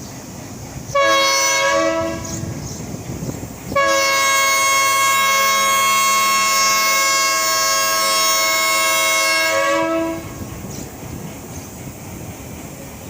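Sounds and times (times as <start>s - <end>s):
locomotive horn blasts: 0.9s - 2.6s, 3.7s - 10.5s.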